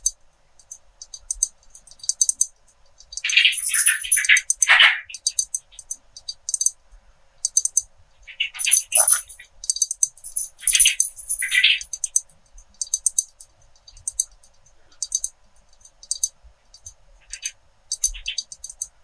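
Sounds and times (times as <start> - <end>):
pens tapping against glass: 10.0 - 12.2.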